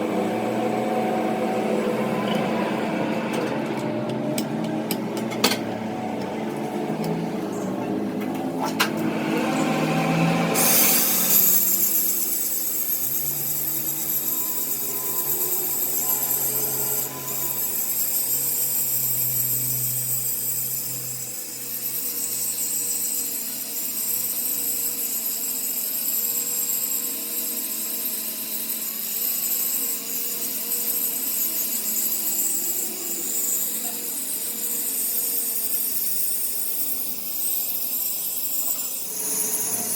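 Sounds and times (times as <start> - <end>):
power tool hissing on metal: 9.4 - 39.9.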